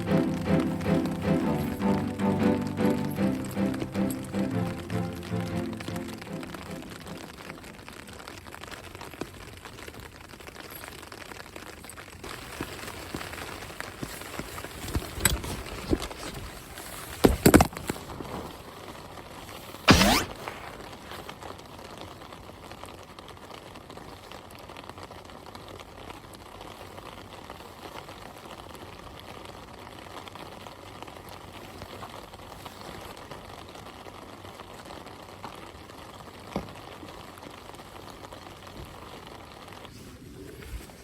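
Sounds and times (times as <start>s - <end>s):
rain patter and hiss: 0.0s - 41.0s.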